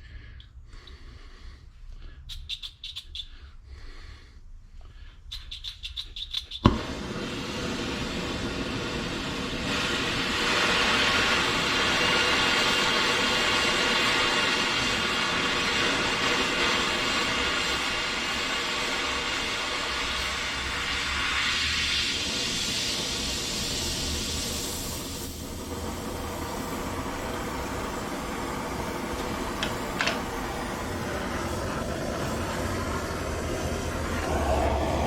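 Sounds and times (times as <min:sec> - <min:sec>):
flame catching pop: 0:06.6 - 0:07.4, 0:29.1 - 0:30.6
torch flame hissing: 0:06.6 - 0:35.0
igniter clicks: 0:29.0 - 0:30.6.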